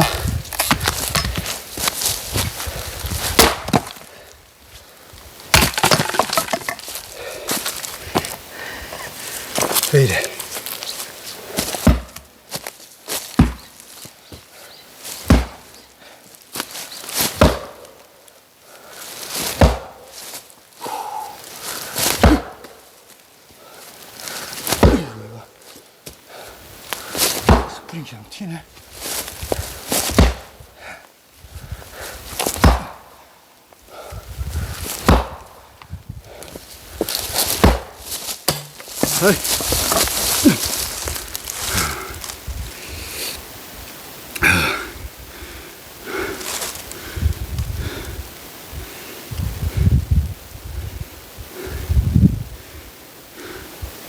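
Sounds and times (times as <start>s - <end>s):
axe chopping firewood: 0.0s - 2.0s, 3.3s - 4.1s, 5.5s - 7.0s, 11.6s - 12.3s, 13.4s - 13.7s, 15.2s - 15.7s, 17.3s - 18.0s, 19.5s - 20.0s, 22.0s - 22.8s, 24.7s - 25.2s, 27.3s - 27.8s, 30.0s - 30.6s, 32.4s - 33.0s, 35.0s - 35.5s, 37.4s - 40.8s
wood knocking and handling: 5.5s - 7.0s, 38.5s - 40.8s.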